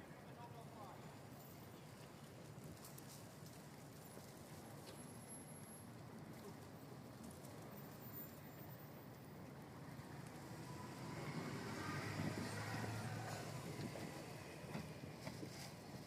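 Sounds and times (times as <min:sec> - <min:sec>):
faint city street noise: 0:00.0 - 0:16.0
motor vehicle passing: 0:10.0 - 0:15.3.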